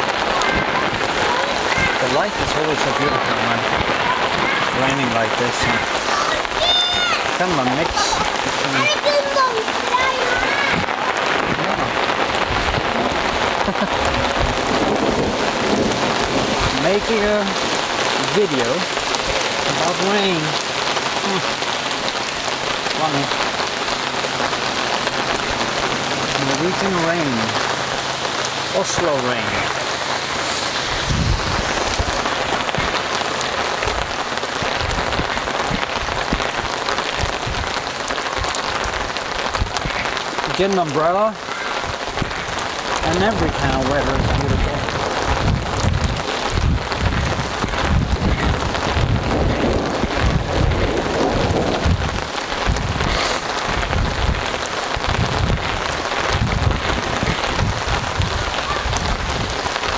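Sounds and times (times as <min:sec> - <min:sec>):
heavy rain pouring: 0:00.0 - 0:59.9
low rumble: 0:29.5 - 0:35.3.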